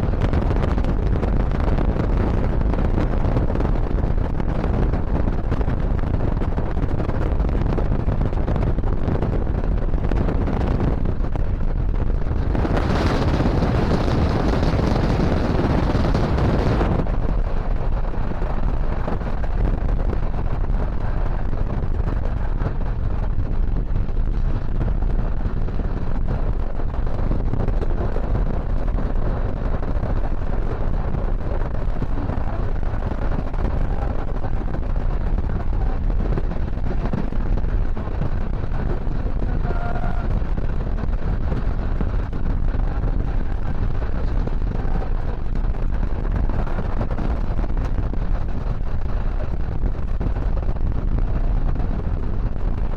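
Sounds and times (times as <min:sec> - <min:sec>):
wind buffeting microphone: 0:00.0 - 0:52.9
train rumbling on track: 0:25.6 - 0:50.0.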